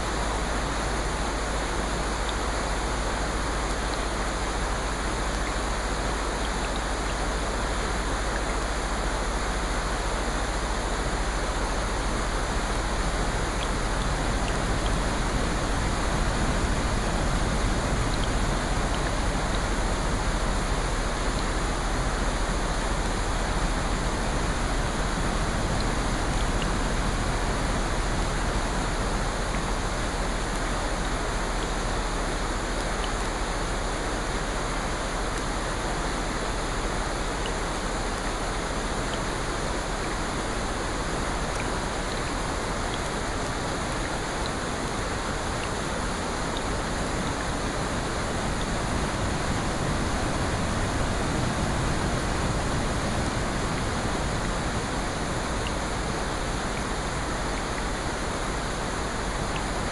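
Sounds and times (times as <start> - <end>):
water noise: 0.0 - 59.9
faint ticks: 59.3 - 59.8.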